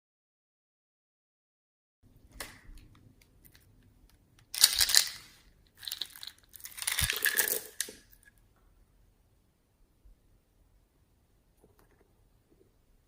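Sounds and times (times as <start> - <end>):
sticky crackling and popping: 4.4 - 8.2.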